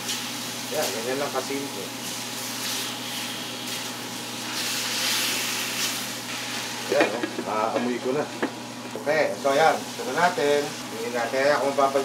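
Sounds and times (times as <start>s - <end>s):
chicken sizzling in a wok: 0.0s - 12.0s
man talking: 6.9s - 8.4s, 9.0s - 12.0s.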